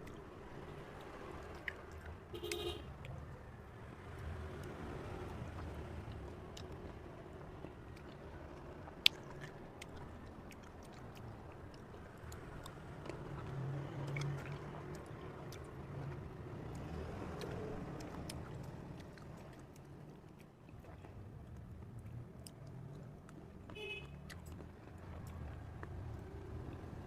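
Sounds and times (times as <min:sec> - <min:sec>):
person chewing cherries: 0:08.8 - 0:15.8, 0:16.7 - 0:26.0.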